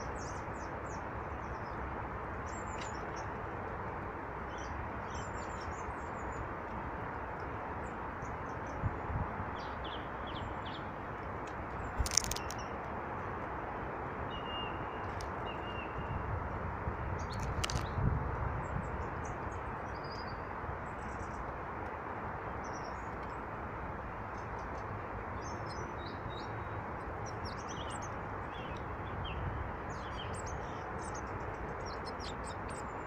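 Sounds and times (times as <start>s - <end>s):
small birds chirping: 0.0s - 3.4s, 4.5s - 6.6s, 11.7s - 12.8s, 17.1s - 21.5s, 24.3s - 33.0s.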